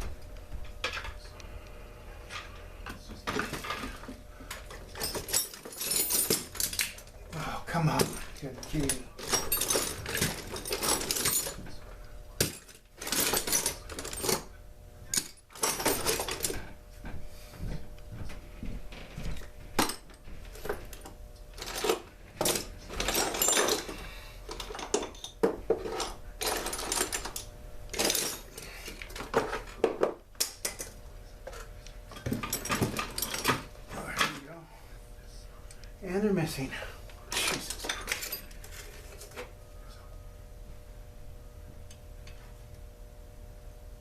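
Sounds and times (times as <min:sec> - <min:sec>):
faint steady hum: 0:00.0 - 0:44.0
metal parts and tools clattering: 0:03.2 - 0:07.1, 0:07.7 - 0:11.8, 0:12.4 - 0:14.5, 0:15.1 - 0:16.7, 0:19.4 - 0:34.5, 0:37.3 - 0:39.5.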